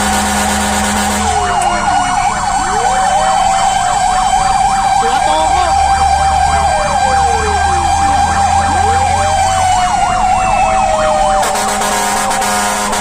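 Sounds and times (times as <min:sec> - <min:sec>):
wailing siren: 0:00.0 - 0:13.0
fast yelping siren: 0:01.0 - 0:13.0.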